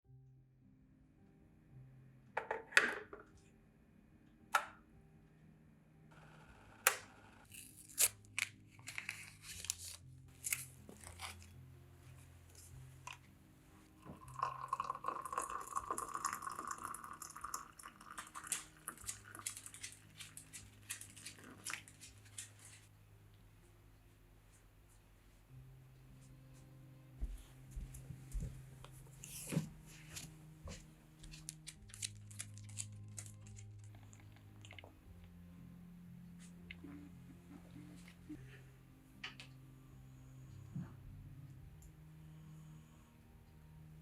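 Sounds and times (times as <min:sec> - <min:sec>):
rustling and crinkling: 0:07.5 - 0:13.4, 0:18.3 - 0:22.9, 0:28.0 - 0:34.8.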